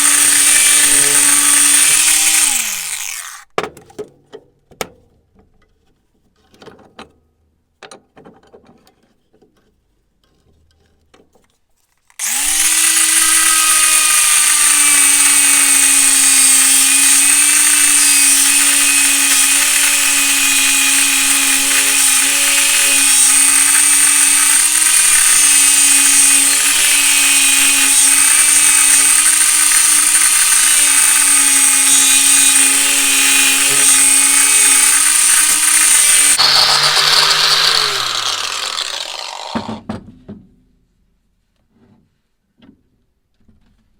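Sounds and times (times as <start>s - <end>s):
power tool motor running: 0.0s - 3.4s, 12.2s - 39.8s.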